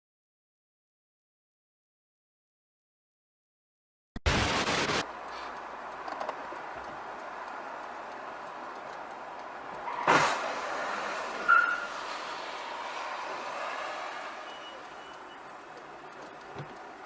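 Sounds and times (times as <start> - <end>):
road traffic noise: 4.3 - 17.0.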